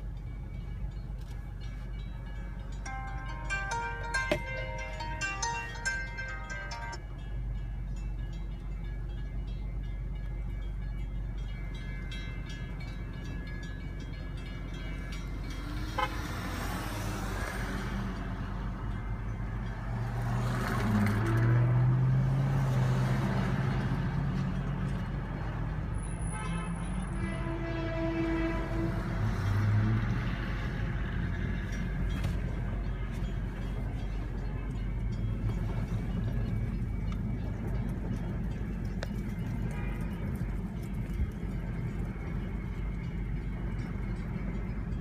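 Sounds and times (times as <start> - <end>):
electric train rumbling past: 0.0 - 45.0
train horn blasts: 15.8 - 16.7, 26.0 - 29.9.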